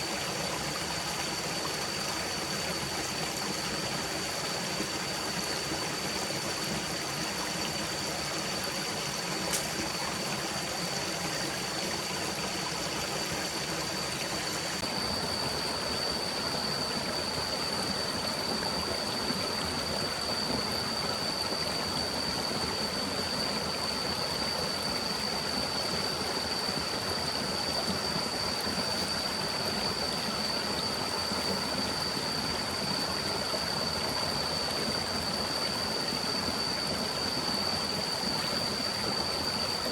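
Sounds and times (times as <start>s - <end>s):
stream flowing: 0.0s - 39.9s
thin steady high tone: 0.0s - 39.9s
small click: 9.5s - 9.8s.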